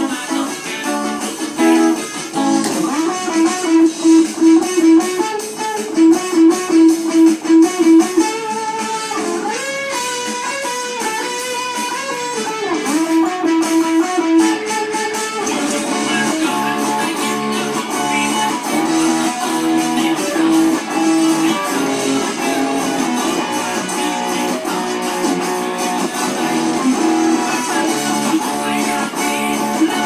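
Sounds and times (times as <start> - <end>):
electric guitar line: 0.0 - 30.0
instrumental band music: 0.0 - 30.0.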